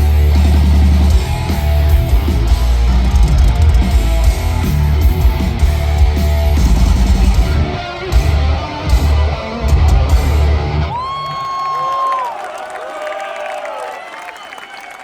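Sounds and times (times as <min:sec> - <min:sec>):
heavy metal band playing: 0:00.0 - 0:11.1.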